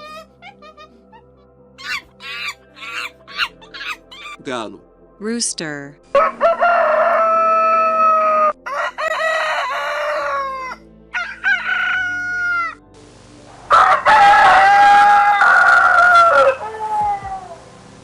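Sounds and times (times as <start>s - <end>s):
rooster crowing: 6.2s - 12.8s, 13.7s - 17.7s.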